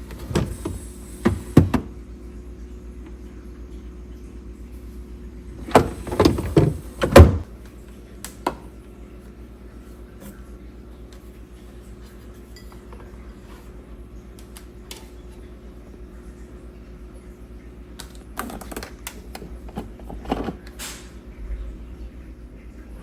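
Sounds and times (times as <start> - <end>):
steady low hum: 0.0 - 8.2, 19.2 - 23.0
kitchen things clunking: 5.6 - 7.5, 18.4 - 21.2.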